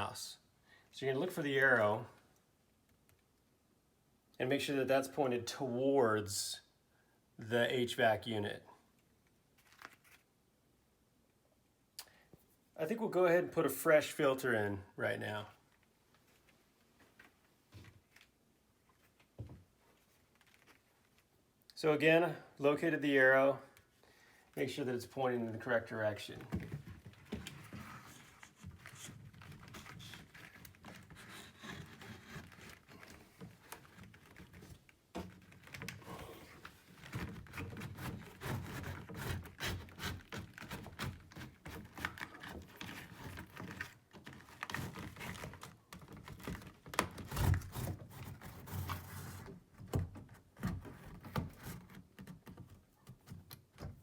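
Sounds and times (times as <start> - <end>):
air filter rustling and scraping: 24.6 - 46.6, 47.2 - 49.7.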